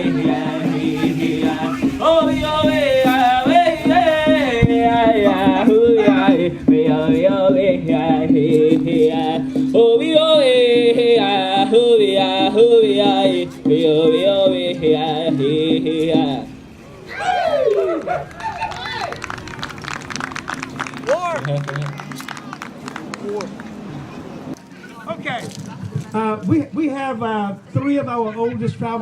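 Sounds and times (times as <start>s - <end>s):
man singing wordless vocables: 0.0s - 16.6s.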